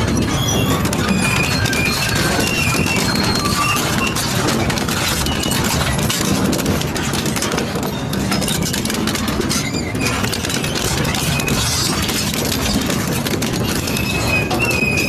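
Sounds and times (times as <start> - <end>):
high metallic squeals: 0.0 - 5.8, 13.6 - 15.0.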